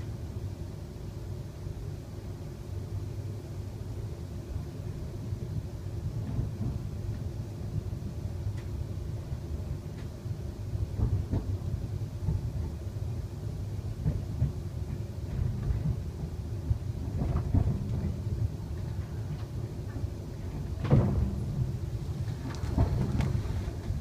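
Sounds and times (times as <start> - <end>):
train wheels rumbling on rails: 0.0 - 24.0
wheels knocking over track: 20.8 - 24.0.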